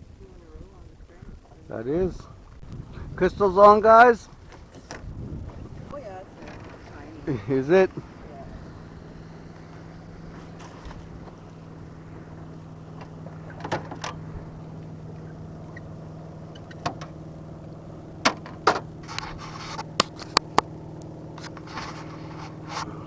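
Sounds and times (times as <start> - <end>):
boat motor humming: 0.0 - 23.0
sharp knocks and clicks: 13.0 - 14.2, 16.5 - 17.2, 18.2 - 18.9, 19.7 - 22.6.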